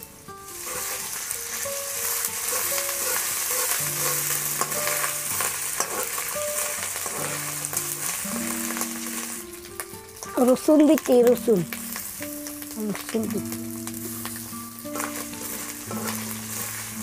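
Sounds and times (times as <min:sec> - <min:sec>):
onions sizzling in hot oil: 0:00.0 - 0:17.0
metal spatula scraping a pan: 0:00.5 - 0:09.4, 0:14.2 - 0:17.0.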